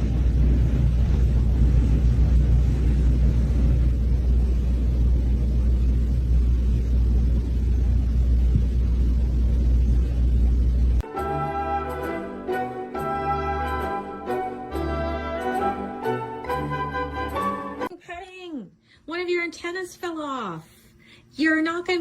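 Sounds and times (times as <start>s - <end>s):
loud low rumble: 0.0s - 11.1s
orchestral music with brass: 11.0s - 17.9s.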